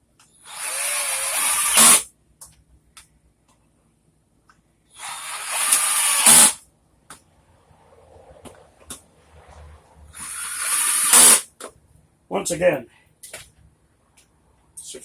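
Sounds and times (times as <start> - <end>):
power drill driving bolts: 0.4 - 2.1, 5.0 - 6.6, 10.1 - 11.5.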